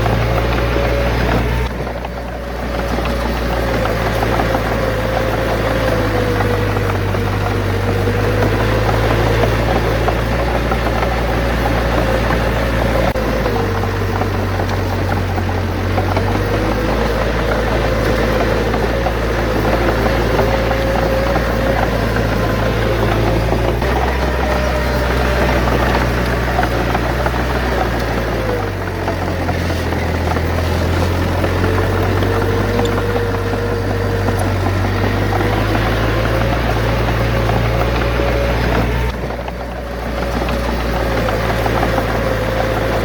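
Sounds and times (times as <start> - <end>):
bulldozer diesel engine running: 0.0 - 43.0.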